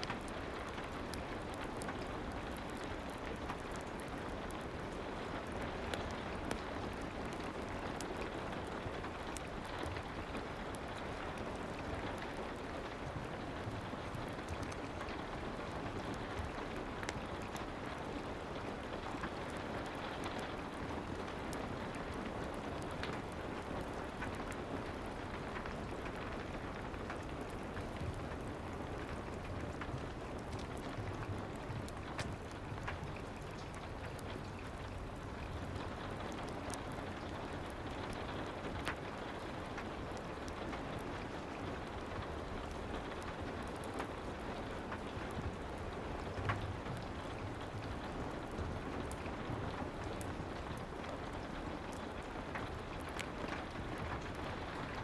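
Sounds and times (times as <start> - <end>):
fireplace crackles: 0.0 - 55.0
soft rain hiss: 0.0 - 55.0.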